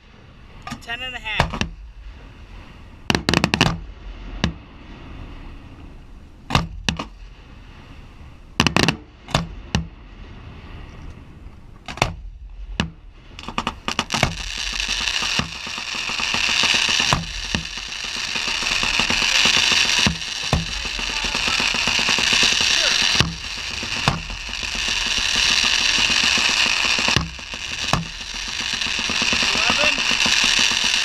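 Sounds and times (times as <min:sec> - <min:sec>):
firework bangs: 0:01.3 - 0:07.4, 0:08.6 - 0:10.0, 0:11.9 - 0:31.0
rapid firework cracks: 0:12.0 - 0:31.0
firework crackling hiss: 0:13.2 - 0:31.0.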